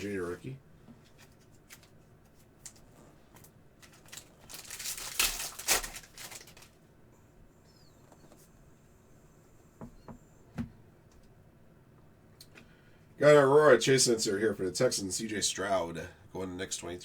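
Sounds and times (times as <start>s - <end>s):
foil wrapper crinkling: 1.1s - 6.8s.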